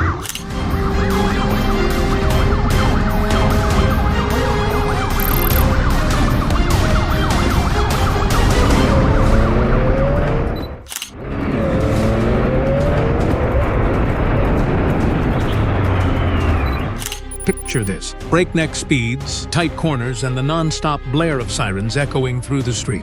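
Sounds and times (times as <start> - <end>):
police sirens wailing: 0.0 - 10.6
traffic and engine noise: 0.0 - 17.9.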